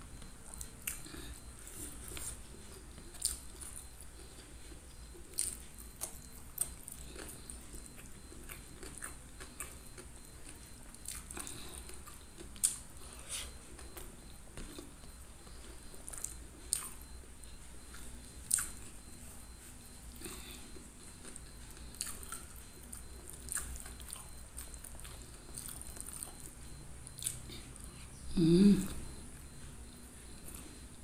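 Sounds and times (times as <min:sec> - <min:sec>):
person chewing: 0:00.0 - 0:30.9.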